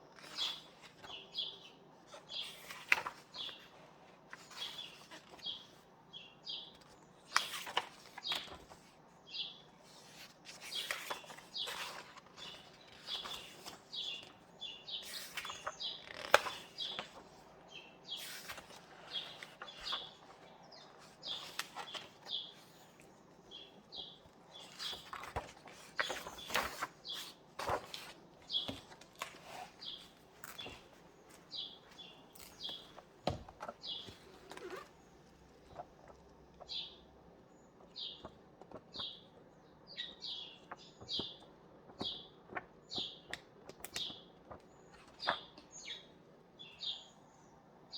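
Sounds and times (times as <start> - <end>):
book pages turning: 0.1 - 1.4, 2.0 - 5.9, 6.7 - 9.0, 9.8 - 36.8, 38.2 - 39.2, 40.6 - 45.6
small birds chirping: 0.2 - 47.9
paper rustling: 2.1 - 5.8, 6.7 - 8.9, 9.8 - 23.2, 24.0 - 36.6.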